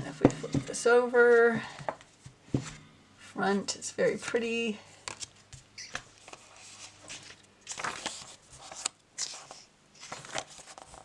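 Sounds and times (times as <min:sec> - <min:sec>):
book pages turning: 0:05.1 - 0:11.0.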